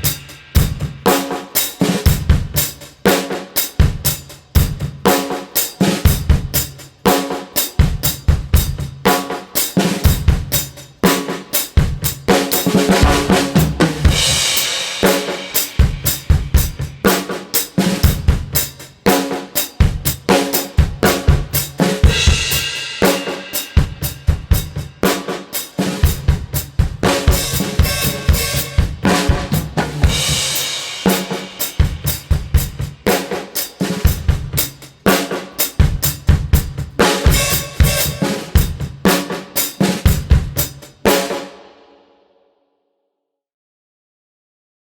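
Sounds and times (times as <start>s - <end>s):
drum kit groove: 0.0s - 41.8s
cymbal crashes: 27.4s - 29.4s.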